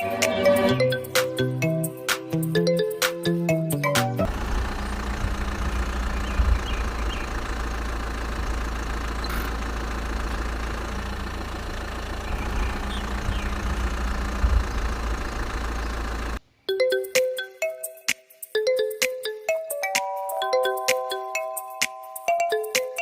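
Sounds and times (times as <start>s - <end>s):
small engine idling: 4.0s - 16.4s.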